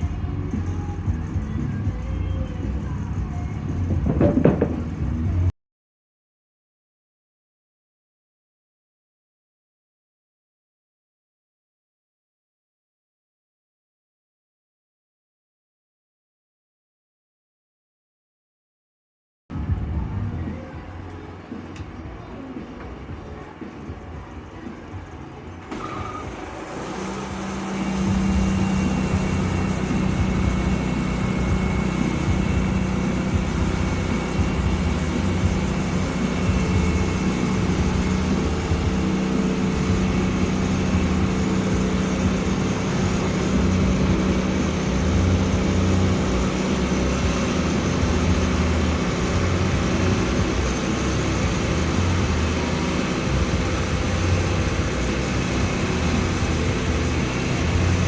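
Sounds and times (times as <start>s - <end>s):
sawmill engine running: 23.5s - 58.0s.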